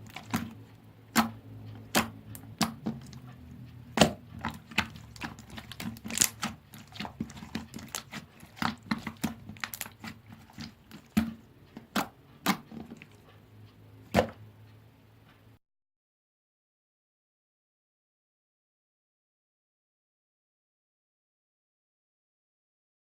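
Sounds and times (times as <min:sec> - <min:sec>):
slime squished by hand: 0:00.0 - 0:03.3, 0:03.9 - 0:13.2.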